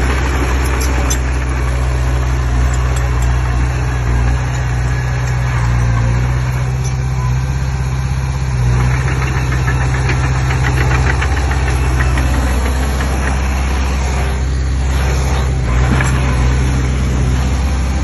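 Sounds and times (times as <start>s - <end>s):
bulldozer diesel engine running: 0.0s - 18.0s
rapid ticking: 8.8s - 13.9s.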